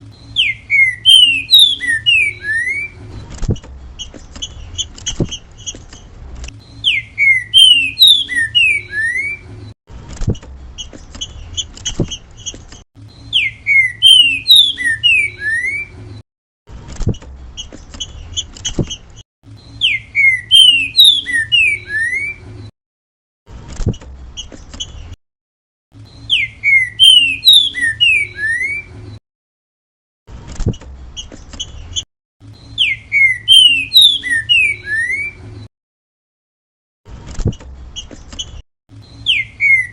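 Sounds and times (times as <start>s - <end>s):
bird singing whistled notes: 0.1s - 3.0s, 6.6s - 9.5s, 13.1s - 16.0s, 19.6s - 22.5s, 26.0s - 29.0s, 31.9s - 35.4s, 39.0s - 39.9s
soft bird chirps and clicks: 3.2s - 6.7s, 10.4s - 12.8s, 17.2s - 19.7s, 30.6s - 32.9s, 37.3s - 39.5s.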